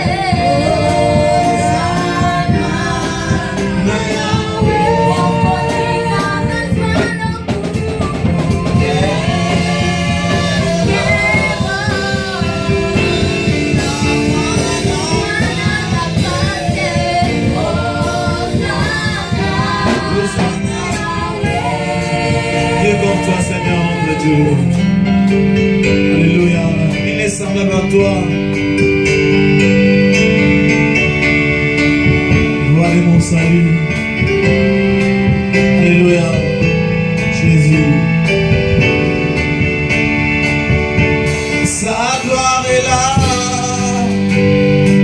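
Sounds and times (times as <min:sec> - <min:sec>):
choir singing gospel song: 0:00.0 - 0:27.8, 0:40.6 - 0:45.0
live band over steady beat: 0:00.0 - 0:45.0.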